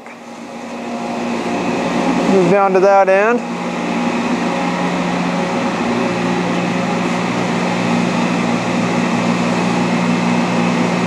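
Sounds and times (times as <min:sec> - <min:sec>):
lathe humming: 0:00.0 - 0:11.0.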